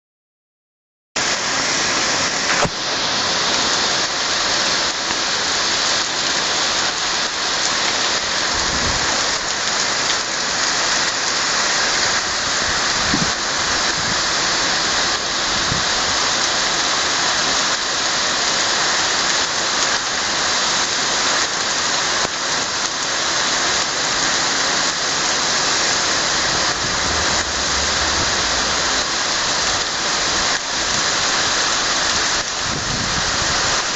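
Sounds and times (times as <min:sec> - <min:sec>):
heavy rain hissing: 0:01.2 - 0:33.9
brief low rumbles: 0:26.4 - 0:30.8.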